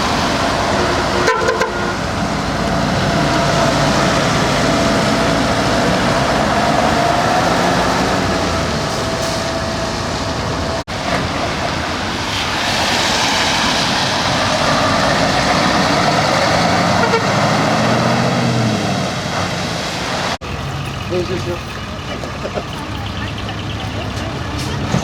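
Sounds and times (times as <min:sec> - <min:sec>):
traffic noise: 0:00.0 - 0:25.0
truck engines: 0:00.0 - 0:25.0.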